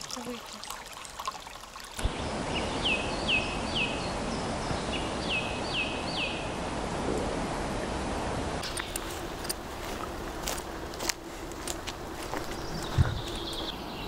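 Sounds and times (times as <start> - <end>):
brook trickling over stones: 0.0 - 2.1.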